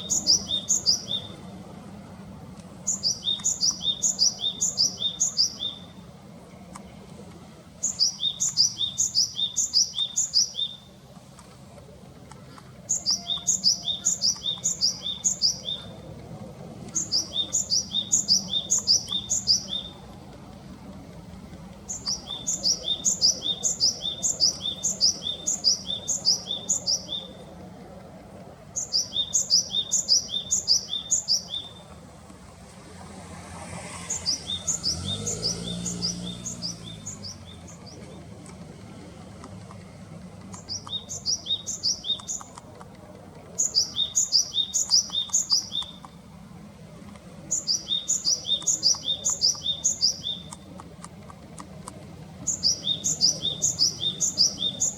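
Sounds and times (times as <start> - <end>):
bird song of two-part notes: 12.9 - 16.0, 17.0 - 20.0
passing vehicle engine hum: 30.6 - 54.9.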